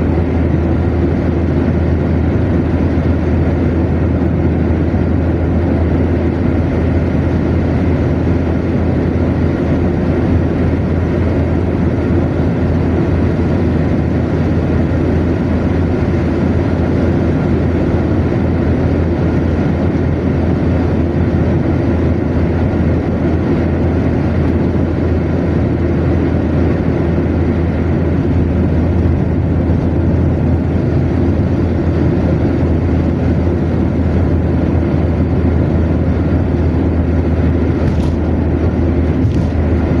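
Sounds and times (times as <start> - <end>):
car engine and tyre drone: 31.2 - 40.0.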